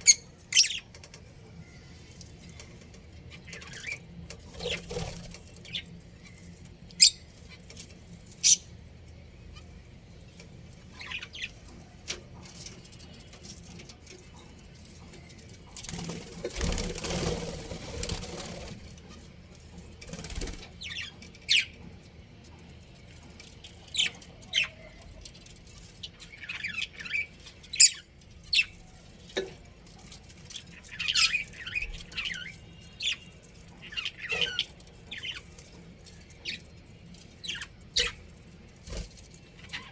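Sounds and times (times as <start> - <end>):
wings flapping: 15.8 - 18.9, 20.0 - 20.7
budgerigars chirping: 30.7 - 35.6, 37.4 - 38.2.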